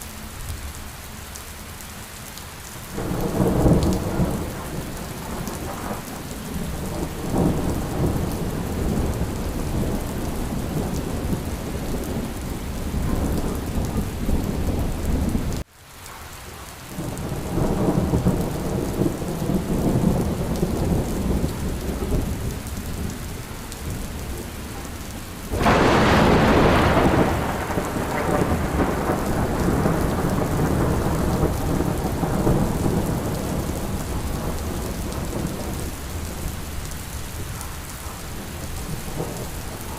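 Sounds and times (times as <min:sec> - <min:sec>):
heavy rain: 0:00.0 - 0:39.9
loud thunderclap: 0:03.0 - 0:15.6, 0:23.9 - 0:36.5
rolling thunder: 0:03.0 - 0:15.6, 0:17.0 - 0:39.9.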